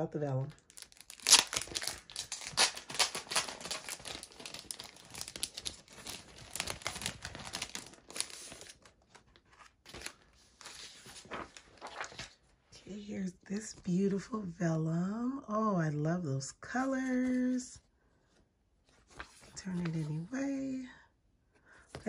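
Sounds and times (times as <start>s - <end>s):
paper and packaging crinkling: 0.4s - 12.5s.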